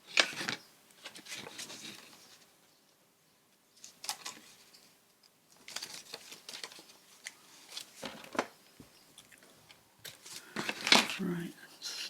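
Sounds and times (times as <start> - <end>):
paper rustling: 0.0 - 2.5, 3.8 - 8.9, 10.1 - 11.4.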